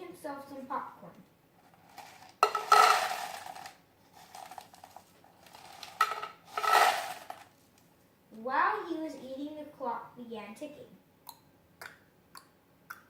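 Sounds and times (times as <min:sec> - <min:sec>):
pieces rattling against metal: 0:01.9 - 0:07.4.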